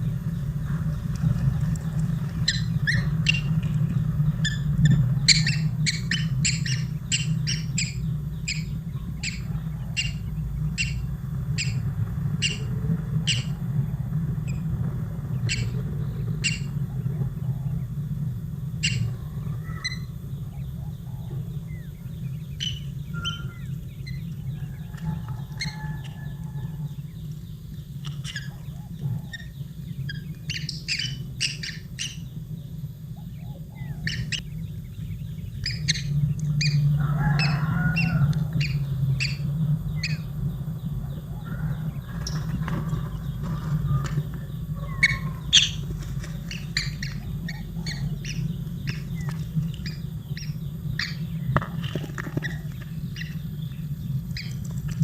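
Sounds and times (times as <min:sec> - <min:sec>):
bird chirping: 0:00.0 - 0:55.0
steady low hum: 0:00.0 - 0:55.0.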